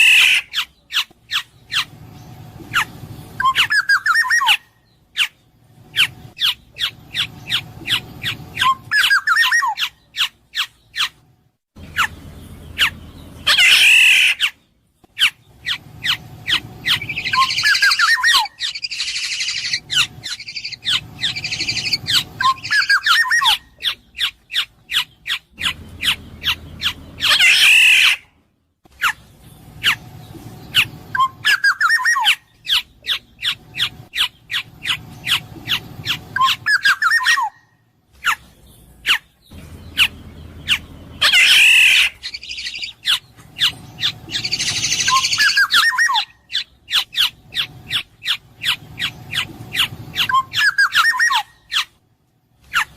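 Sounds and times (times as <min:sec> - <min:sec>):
bird harsh nasal squawk: 0:00.0 - 0:01.9, 0:06.0 - 0:11.1, 0:12.8 - 0:14.6, 0:15.2 - 0:28.3, 0:31.1 - 0:37.6, 0:40.7 - 0:51.9
bird fluted whistles: 0:02.7 - 0:05.3, 0:06.0 - 0:10.0, 0:15.7 - 0:24.3, 0:30.7 - 0:37.6, 0:39.9 - 0:48.0, 0:48.7 - 0:51.9.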